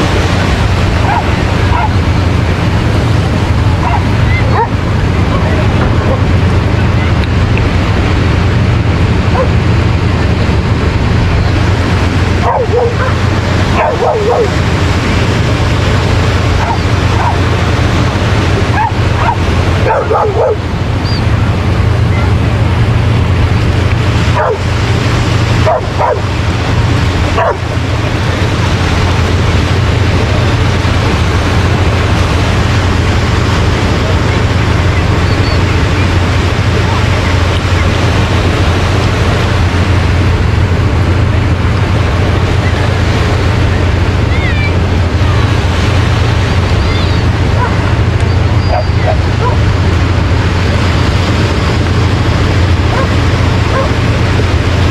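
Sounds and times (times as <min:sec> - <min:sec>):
surf washing on beach: 0:00.0 - 0:54.9
wind rumbling on microphone: 0:00.0 - 0:54.9
dogs barking and yipping: 0:01.0 - 0:02.0, 0:03.8 - 0:04.8, 0:09.3 - 0:09.5, 0:12.4 - 0:14.6, 0:16.6 - 0:17.4, 0:18.7 - 0:21.3, 0:24.4 - 0:24.6, 0:25.6 - 0:26.2, 0:27.4 - 0:27.6, 0:46.9 - 0:49.6, 0:52.9 - 0:54.0.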